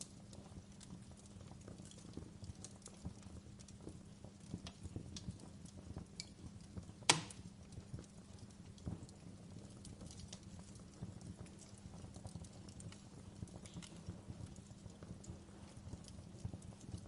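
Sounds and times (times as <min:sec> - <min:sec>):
low fire rumble: 0:00.0 - 0:17.0
wood fire crackling: 0:00.0 - 0:17.0
loud pop of fire: 0:07.0 - 0:07.5.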